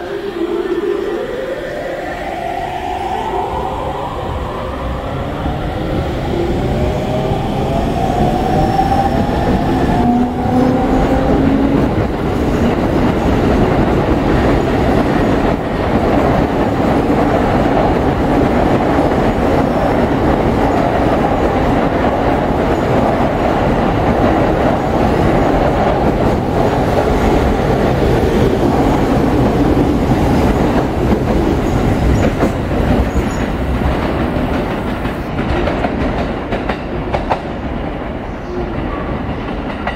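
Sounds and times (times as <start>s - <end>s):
rising inverter whine: 0.0s - 11.8s
electric train passing: 0.0s - 39.9s.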